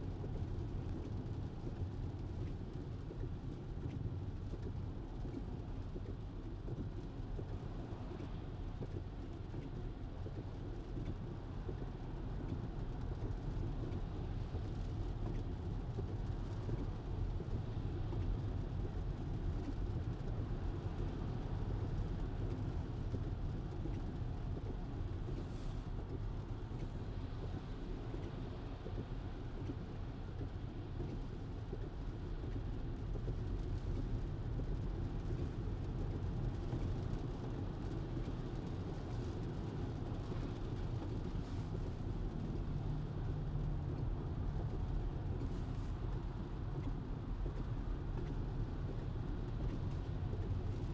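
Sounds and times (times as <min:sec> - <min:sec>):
road and tyre noise: 0:22.0 - 0:50.9.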